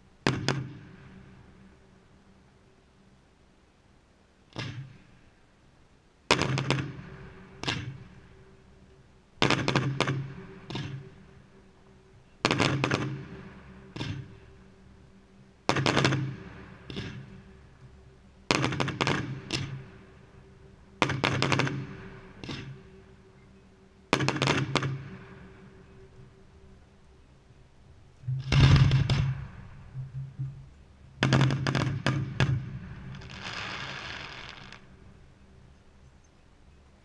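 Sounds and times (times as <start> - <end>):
firework bangs: 12.4 - 14.4, 15.7 - 17.4, 18.5 - 19.8, 28.4 - 29.8, 31.2 - 35.0.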